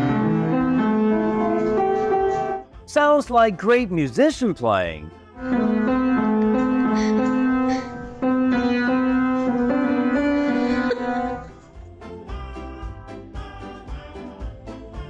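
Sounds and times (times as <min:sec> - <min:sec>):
keyboard playing held notes: 0:00.0 - 0:02.7, 0:04.0 - 0:11.6
lively background music: 0:00.0 - 0:15.0.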